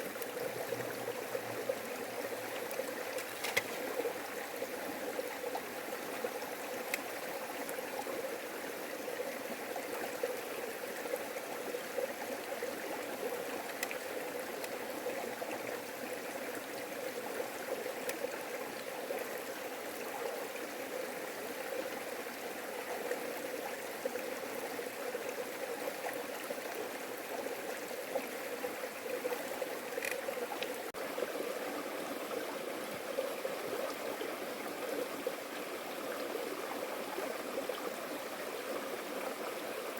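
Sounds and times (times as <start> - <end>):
stream flowing water: 0.0 - 39.9
faint ticks: 6.8 - 7.8, 13.5 - 14.8, 18.0 - 18.9, 29.2 - 30.9.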